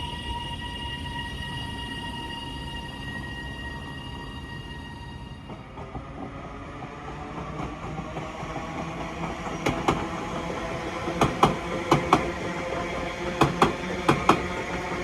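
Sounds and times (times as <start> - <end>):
train rumble: 0.0 - 15.0
wheels clicking over rail joints: 7.4 - 15.0.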